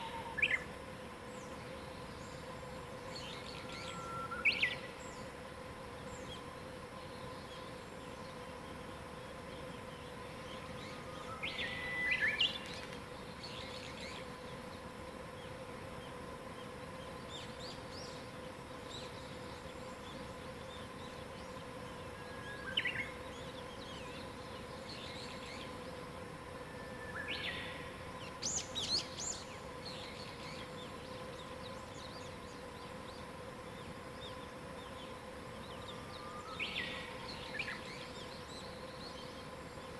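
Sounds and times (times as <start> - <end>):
faint bird chirps: 0.0 - 0.7, 3.1 - 5.3, 26.6 - 39.9
faint steady hum and hiss: 0.0 - 39.9.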